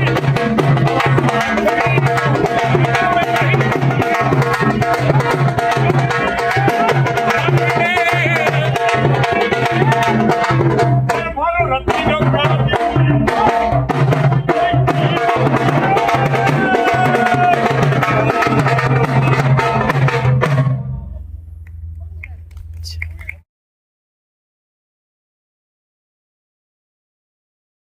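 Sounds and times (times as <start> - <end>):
hand drum beating: 0.0 - 20.8.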